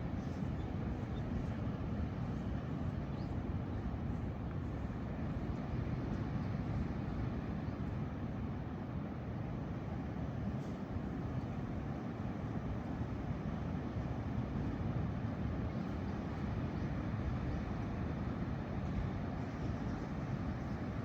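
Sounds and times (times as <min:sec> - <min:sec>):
low beach ambience rumble: 0:00.0 - 0:21.0.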